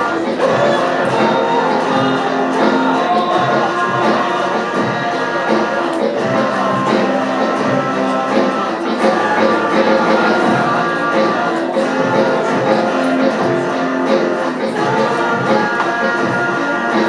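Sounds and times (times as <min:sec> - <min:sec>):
guitar strumming: 0:00.0 - 0:17.0
rock band playing live: 0:00.0 - 0:17.0.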